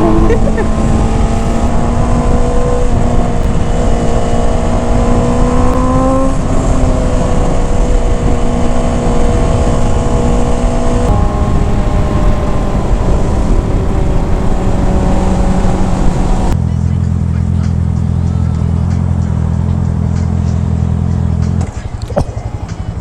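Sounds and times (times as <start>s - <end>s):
heavy wind rush: 0.0s - 16.6s
motorcycle engine running: 0.0s - 23.0s.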